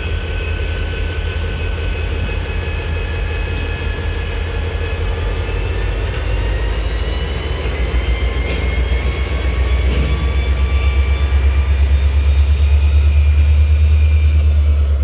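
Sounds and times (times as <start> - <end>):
locomotive engine rumble: 0.0 - 15.0
high whine rising in pitch: 10.4 - 15.0.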